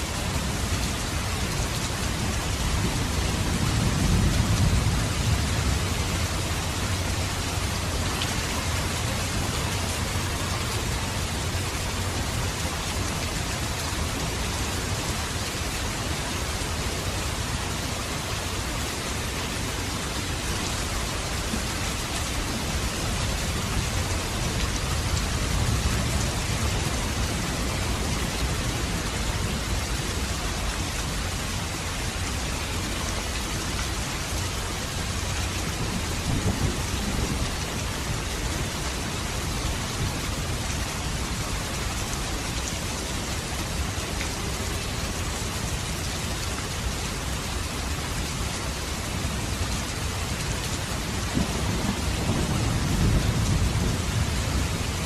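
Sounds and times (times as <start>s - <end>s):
steady rain falling: 0.0s - 55.0s
thunder rumbling: 2.8s - 8.0s, 35.8s - 38.8s, 51.2s - 55.0s.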